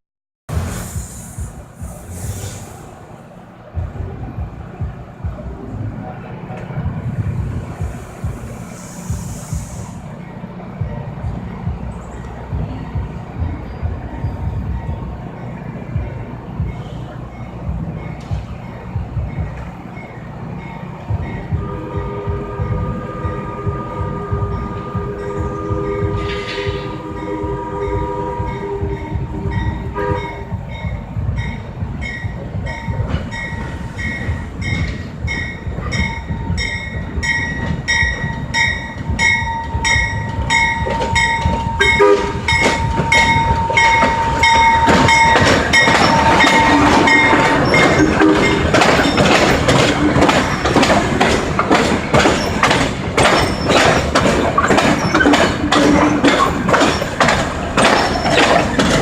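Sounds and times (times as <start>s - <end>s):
train wheels clattering on rails: 0.5s - 59.0s
train horn: 21.5s - 30.6s, 39.5s - 48.9s
bell ringing: 27.2s - 50.7s.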